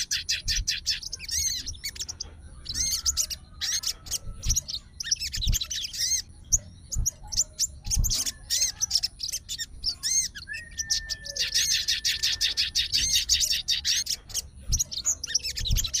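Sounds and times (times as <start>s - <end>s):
songbird chirping: 0.0s - 16.0s
soft low thumps: 6.5s - 8.2s.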